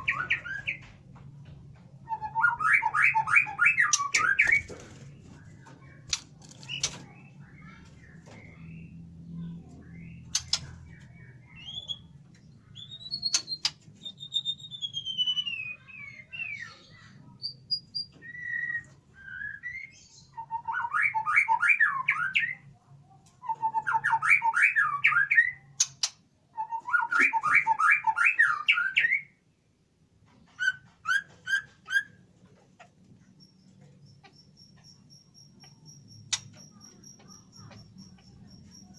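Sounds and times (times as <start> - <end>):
songbird whistling and trilling: 0.0 - 0.9, 2.0 - 4.7, 11.5 - 16.8, 17.4 - 22.6, 23.4 - 25.7, 26.6 - 29.4, 30.6 - 32.2
sharp clicks: 6.1 - 7.2, 10.2 - 10.9, 13.1 - 13.9, 35.6 - 37.9.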